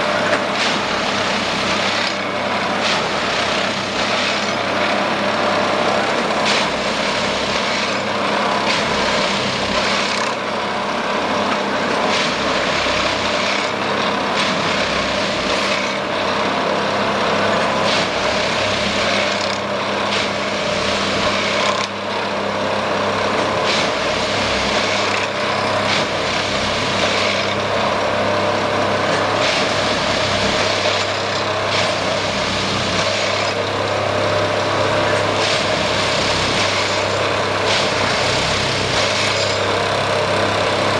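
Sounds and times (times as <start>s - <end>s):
diesel engine humming: 0.0s - 40.9s
sharp tamping sounds: 0.2s - 4.6s, 6.1s - 10.4s, 11.9s - 16.1s, 29.1s - 33.7s, 35.1s - 39.8s.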